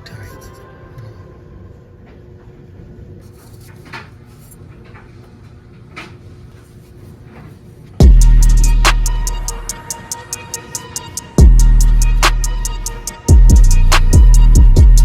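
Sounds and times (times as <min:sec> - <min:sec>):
deep bass hit ringing: 0:08.0 - 0:09.7, 0:11.4 - 0:15.0
background music: 0:08.0 - 0:15.0.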